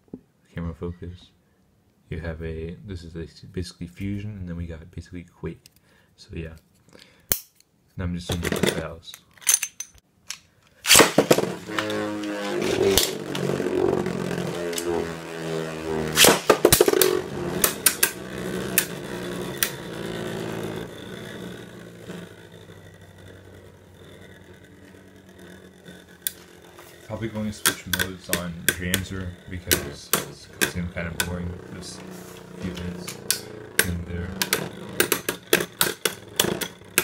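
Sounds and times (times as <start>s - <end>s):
spinning tops whirring: 10.8s - 37.0s
spinning top launcher snap: 10.9s - 13.5s, 14.6s - 19.8s, 22.1s - 37.0s.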